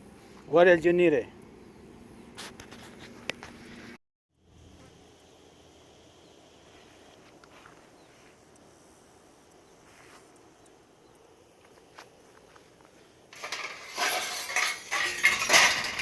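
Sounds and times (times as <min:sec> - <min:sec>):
faint outdoor background noise: 0:00.0 - 0:16.0
light ticks or scrapes: 0:02.3 - 0:04.0.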